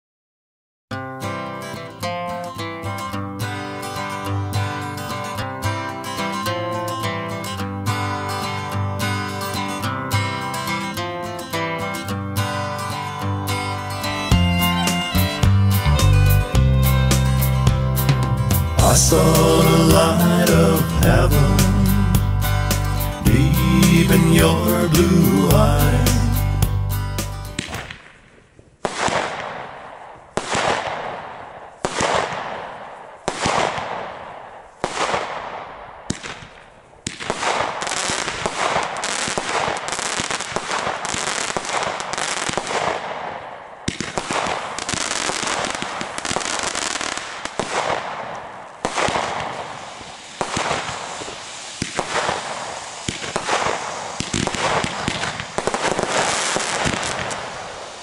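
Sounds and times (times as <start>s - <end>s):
fireworks bangs and crackling: 12.8s - 22.2s, 27.2s - 58.0s.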